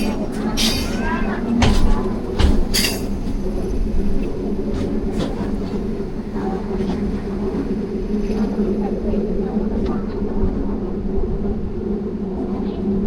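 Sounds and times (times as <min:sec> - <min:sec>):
sharp knocks and clanks: 0:00.0 - 0:03.4
train rumbling: 0:00.0 - 0:13.0.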